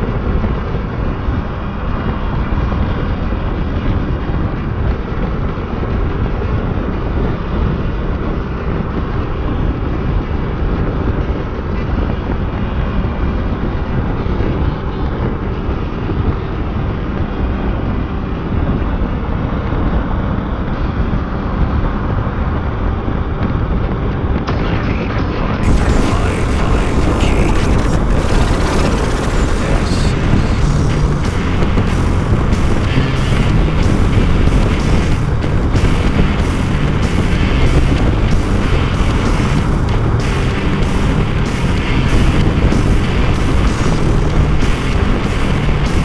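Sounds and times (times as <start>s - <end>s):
wind rush on microphone: 0.0s - 46.0s
motorcycle engine: 25.6s - 46.0s
road noise: 25.6s - 46.0s.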